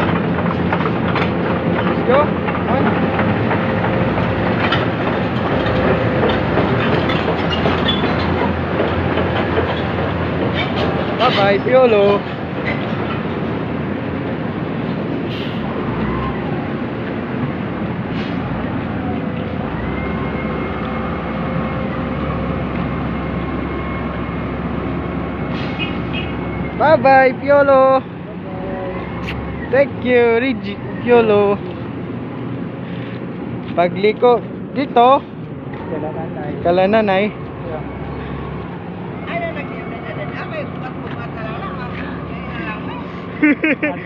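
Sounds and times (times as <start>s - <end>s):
heavy diesel engine running: 0.0s - 33.6s.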